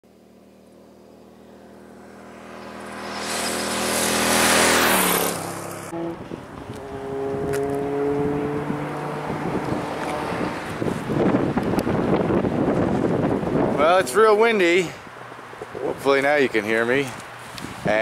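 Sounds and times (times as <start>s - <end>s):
engine running: 0.1s - 15.8s
vehicle engine passing by: 0.6s - 15.6s
wind noise on microphone: 2.7s - 14.8s, 17.1s - 18.0s.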